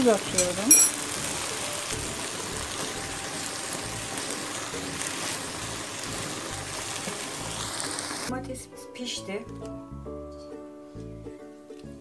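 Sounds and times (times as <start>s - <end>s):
peppers sizzling in oil: 0.0s - 8.3s.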